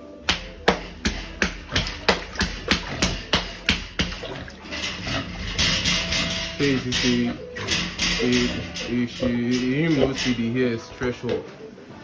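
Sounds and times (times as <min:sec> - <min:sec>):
pig chomping wet feed: 0:00.4 - 0:05.3.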